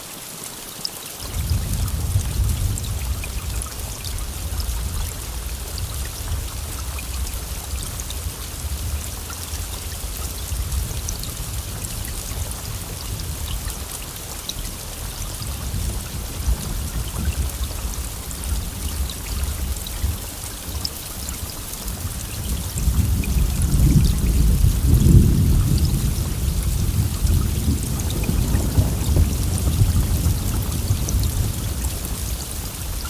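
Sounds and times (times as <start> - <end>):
heavy rain hissing: 0.0 - 33.0
continuous low rumble: 1.3 - 33.0.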